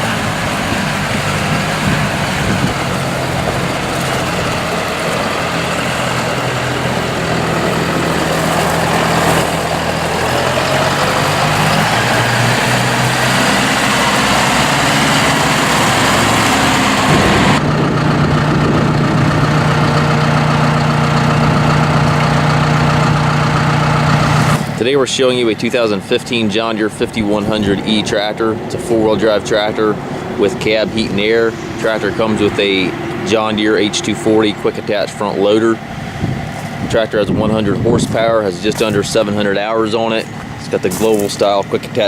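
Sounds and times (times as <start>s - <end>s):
tractor diesel engine running: 0.0s - 42.0s.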